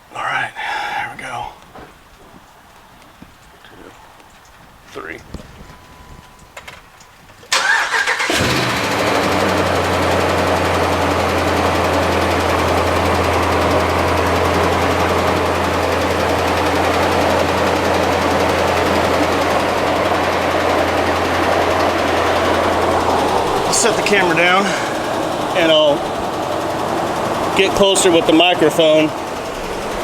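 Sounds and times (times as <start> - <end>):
truck engine idling: 0.0 - 30.0
starter cranking engine: 7.3 - 30.0.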